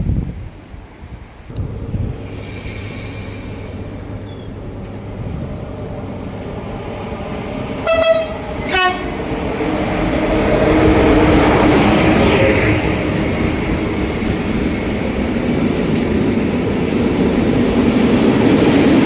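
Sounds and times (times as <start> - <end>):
train rumbling past: 0.0 - 19.0
train horn blasts: 7.8 - 9.2.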